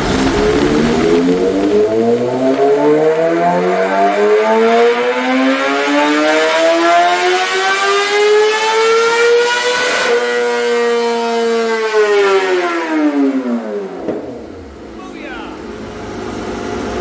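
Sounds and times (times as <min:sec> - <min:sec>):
exhaust rasp: 0:00.0 - 0:17.0
motorcycle engine rising in pitch: 0:00.0 - 0:17.0.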